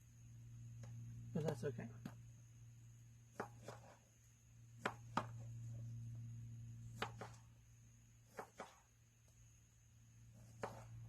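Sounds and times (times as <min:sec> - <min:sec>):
knife chopping food: 0:03.3 - 0:04.0, 0:07.0 - 0:07.4, 0:08.3 - 0:08.8, 0:10.4 - 0:10.9.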